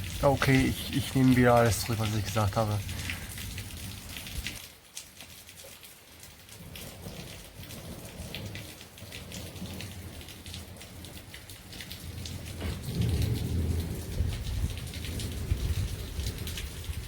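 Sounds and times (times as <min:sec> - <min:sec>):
heavy rain falling: 0:00.0 - 0:17.0
thunder rumbling: 0:06.6 - 0:17.0.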